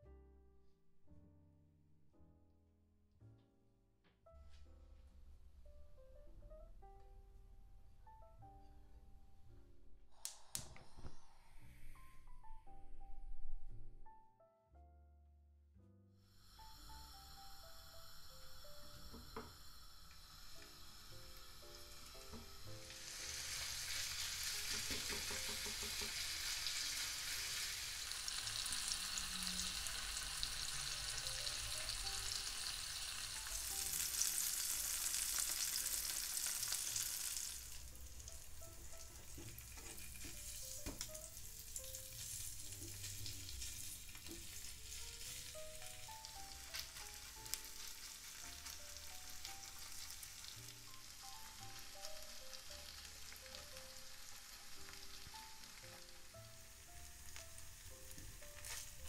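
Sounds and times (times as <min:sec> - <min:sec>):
soft background music: 0:00.0 - 0:59.0
food sizzling in oil: 0:16.4 - 0:59.0.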